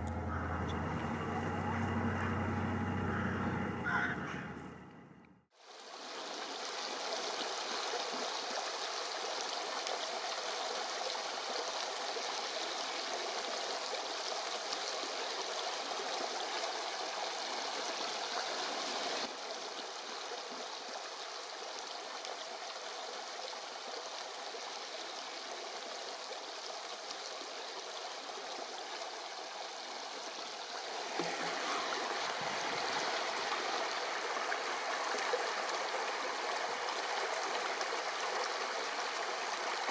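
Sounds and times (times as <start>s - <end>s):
fast-flowing river water: 5.6s - 39.9s.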